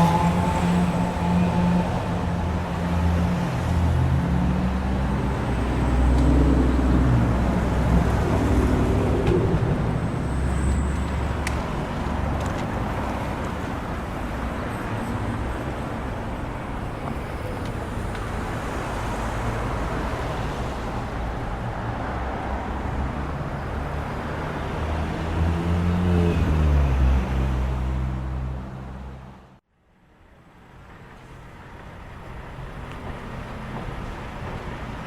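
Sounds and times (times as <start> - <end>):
vehicle engine humming: 0.0 - 19.9
road traffic noise: 0.0 - 35.0.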